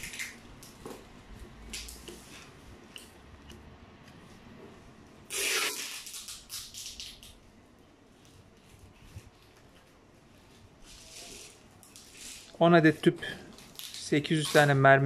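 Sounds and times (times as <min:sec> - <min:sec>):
faint handling rustles: 0:08.0 - 0:15.0.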